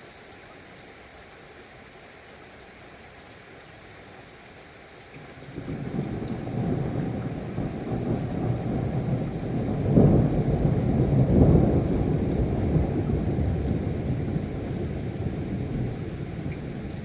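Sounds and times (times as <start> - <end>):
rain: 0.0 - 17.0
thunder rumbling: 5.7 - 17.0.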